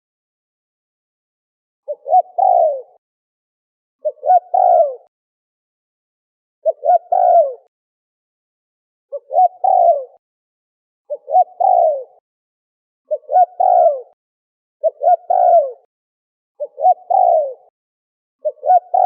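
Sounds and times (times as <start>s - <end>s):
dove cooing: 1.9s - 3.0s, 4.0s - 5.1s, 6.6s - 7.7s, 9.1s - 10.2s, 11.1s - 12.2s, 13.1s - 14.2s, 14.8s - 15.9s, 16.6s - 17.7s, 18.4s - 19.0s.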